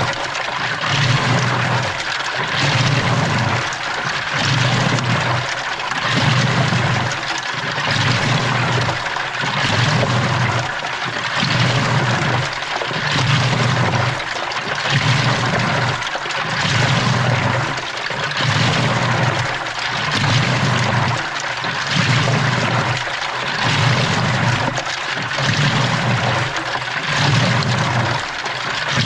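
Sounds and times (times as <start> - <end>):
water sloshing in washing machine: 0.0 - 29.0.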